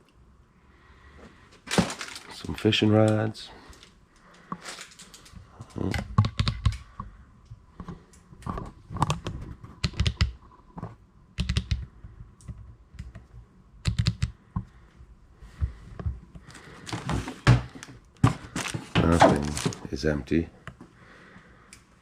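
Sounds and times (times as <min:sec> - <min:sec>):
sharp clicks and knocks: 0:05.9 - 0:14.7.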